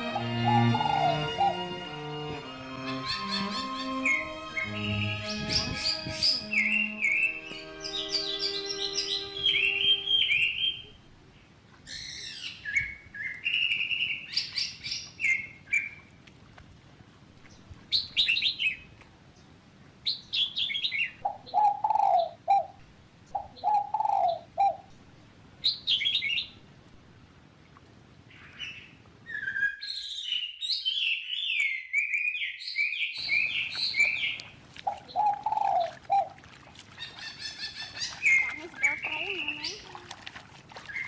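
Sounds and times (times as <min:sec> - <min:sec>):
lower-pitched bird calls: 0:00.0 - 0:01.7, 0:02.8 - 0:11.0, 0:20.1 - 0:24.9, 0:28.3 - 0:40.2
birds chirping: 0:00.0 - 0:11.1, 0:28.4 - 0:41.0.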